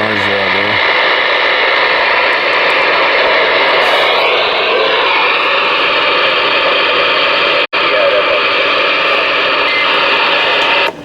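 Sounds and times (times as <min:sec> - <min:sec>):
radio static hissing: 0:00.0 - 0:11.0.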